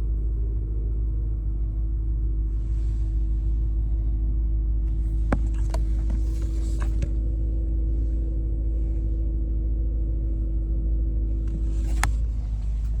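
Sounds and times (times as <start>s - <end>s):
car engine idling: 0.4s - 13.0s
steady hum: 2.5s - 9.3s, 11.1s - 13.0s.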